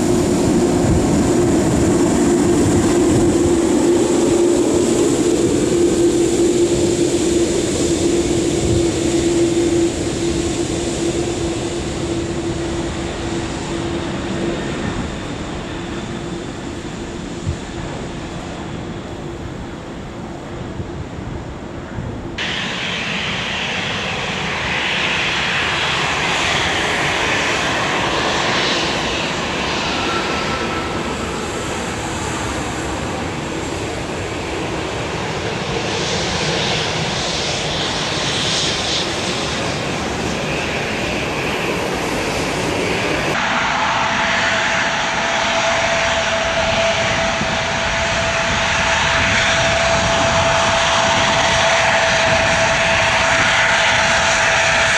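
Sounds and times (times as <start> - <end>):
airliner engines running: 0.0 - 54.9
steady whine: 22.0 - 54.9.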